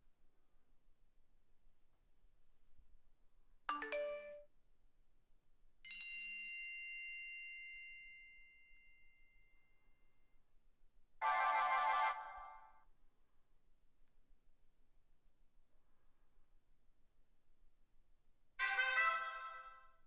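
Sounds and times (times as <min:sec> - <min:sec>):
bell-like phone ding: 0:03.7 - 0:04.4.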